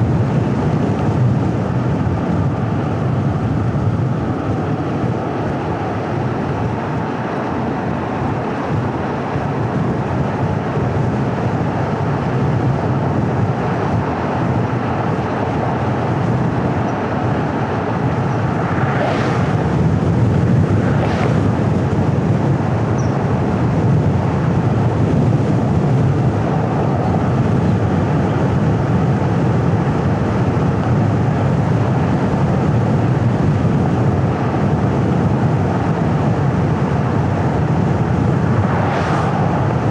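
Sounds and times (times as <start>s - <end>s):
car driving road noise: 0.0s - 39.9s
short rushing sounds: 18.4s - 22.1s, 38.4s - 39.9s.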